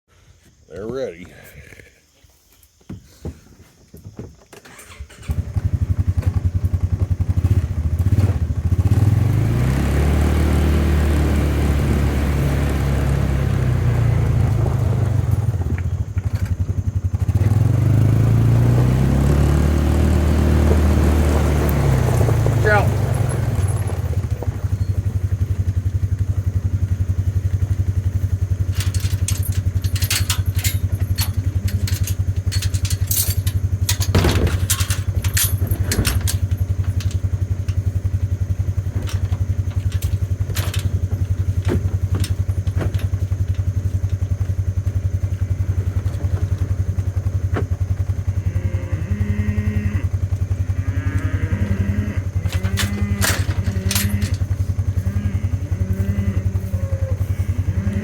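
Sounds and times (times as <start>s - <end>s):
engine idling: 4.8s - 58.0s
clattering knocks: 28.6s - 37.8s.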